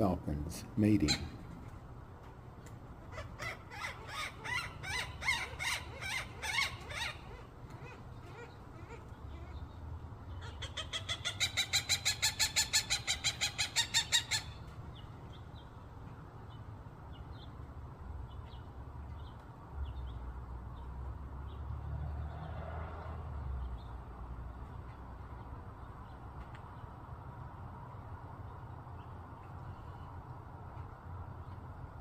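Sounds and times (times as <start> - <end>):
falcon harsh repeated calls: 1.0 - 1.4, 3.1 - 9.0.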